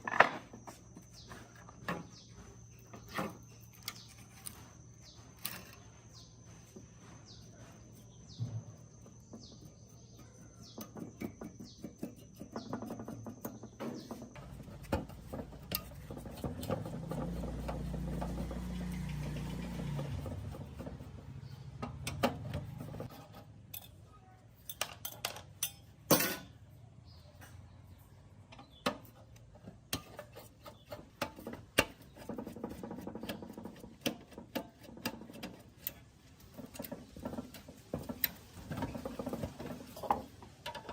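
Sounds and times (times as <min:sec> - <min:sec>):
clicks and knocks on metal: 0:08.4 - 0:24.0, 0:24.6 - 0:26.6, 0:28.5 - 0:40.9.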